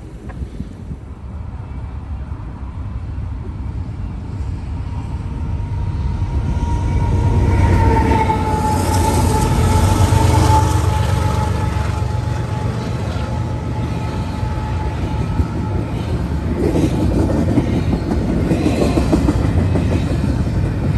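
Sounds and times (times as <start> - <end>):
train rumble: 0.0 - 20.9.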